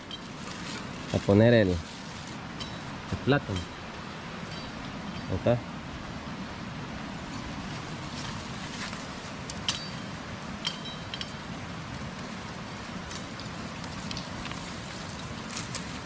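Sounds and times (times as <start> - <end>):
campfire hissing: 0.0 - 16.0
sharp ringing clinks: 4.4 - 5.5, 9.6 - 11.5.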